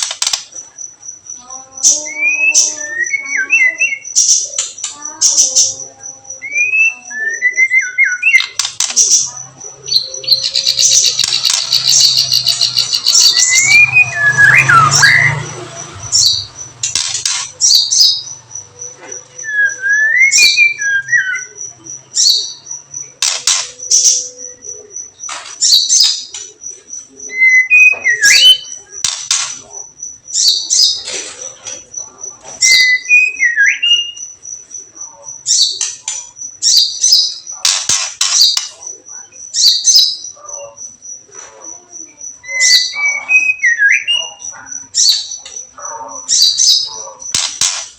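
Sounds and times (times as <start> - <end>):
songbird rattle calls: 0.0 - 47.9
whistled bird phrases: 1.8 - 17.0, 19.2 - 29.8, 30.4 - 34.4, 42.0 - 47.1
high ticking trill: 8.0 - 31.0.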